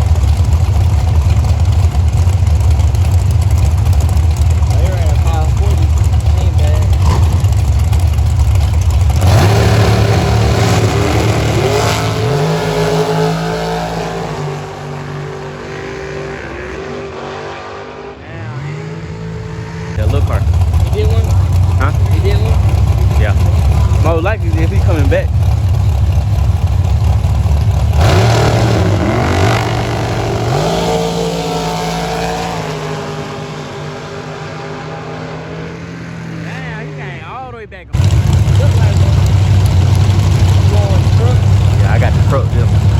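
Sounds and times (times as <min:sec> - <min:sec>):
car engine accelerating: 0:00.0 - 0:42.9.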